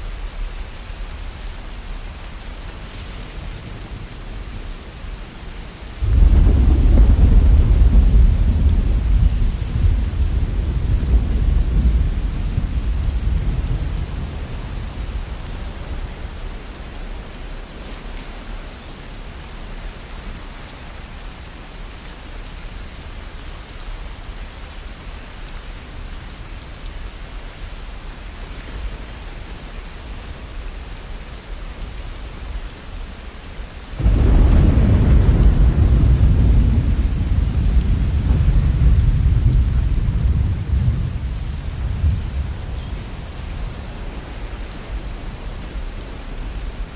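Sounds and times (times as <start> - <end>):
heavy rain: 0.0 - 46.9
thunder rumbling: 6.0 - 16.6, 34.0 - 46.9.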